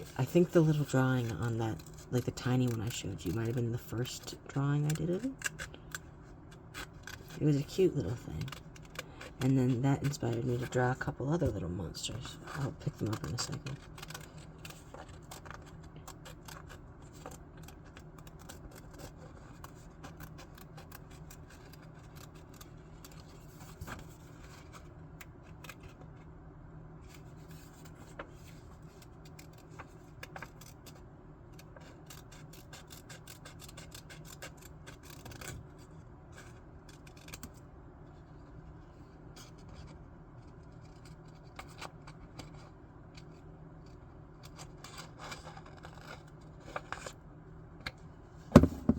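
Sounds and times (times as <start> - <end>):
scissors snipping paper: 0.0 - 24.0, 28.8 - 31.0, 31.6 - 35.8, 36.4 - 37.6, 44.4 - 47.2.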